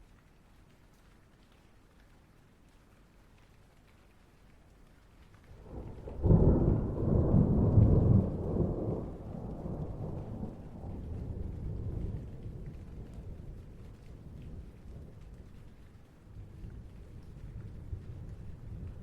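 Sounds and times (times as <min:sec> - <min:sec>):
thunder rumbling: 0:05.5 - 0:15.7, 0:16.4 - 0:19.0.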